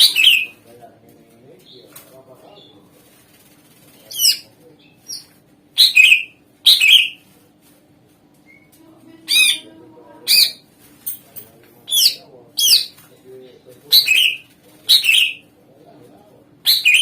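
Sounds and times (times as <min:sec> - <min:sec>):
bird calling sharp notes: 0:05.1 - 0:07.2, 0:13.9 - 0:15.5, 0:16.6 - 0:17.0.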